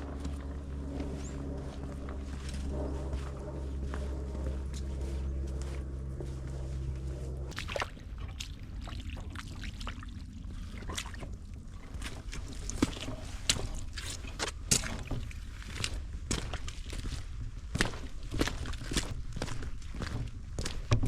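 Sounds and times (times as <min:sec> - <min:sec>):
low engine hum: 0:00.0 - 0:21.0.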